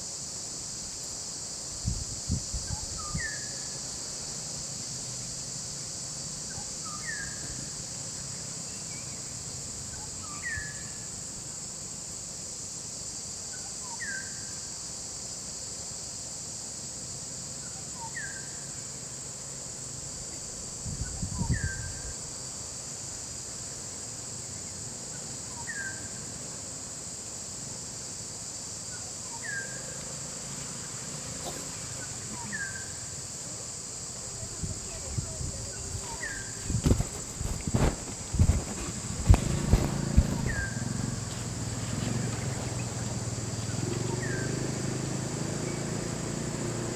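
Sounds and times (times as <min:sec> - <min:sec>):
insect chorus: 0:00.0 - 0:46.9
bird falling call: 0:39.8 - 0:40.9.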